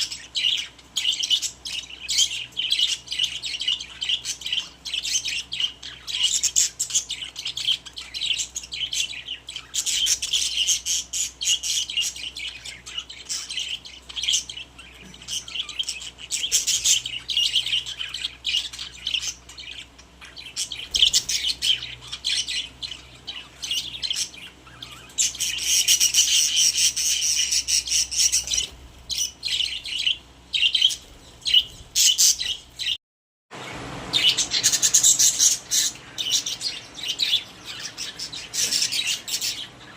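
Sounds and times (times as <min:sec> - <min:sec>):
budgies chirping and warbling: 0:00.0 - 0:33.0, 0:33.6 - 0:39.9.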